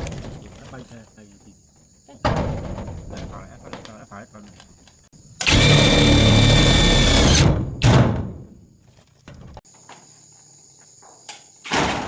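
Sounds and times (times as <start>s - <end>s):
power tool whining in bursts: 5.4s - 7.6s.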